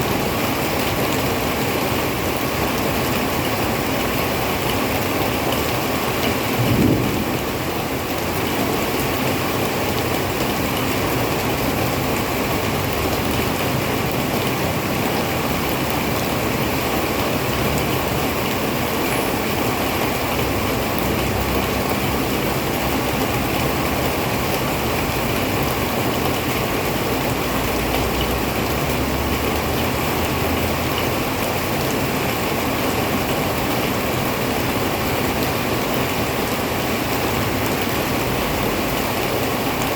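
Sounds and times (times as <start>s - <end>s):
heavy rain: 0.0s - 39.9s
short low thump: 6.6s - 7.6s
low rumble: 6.6s - 8.0s.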